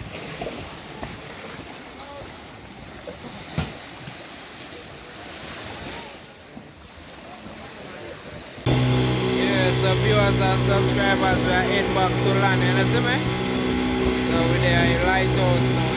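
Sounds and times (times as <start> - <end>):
water rushing past boat: 0.0 - 15.9.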